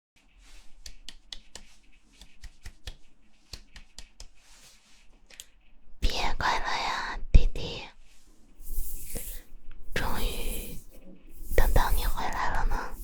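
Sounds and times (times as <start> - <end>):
hand clicks and taps: 0.8 - 4.4.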